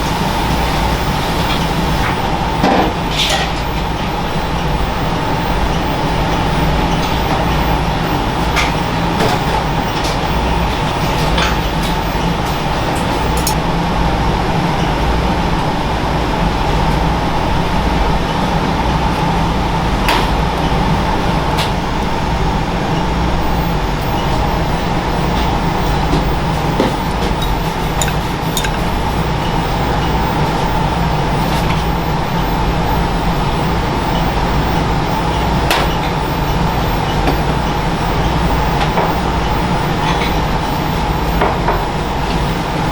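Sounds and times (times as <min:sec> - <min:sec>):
machine hum with low rumble: 0:00.0 - 0:42.9
faint held tone: 0:21.9 - 0:42.9.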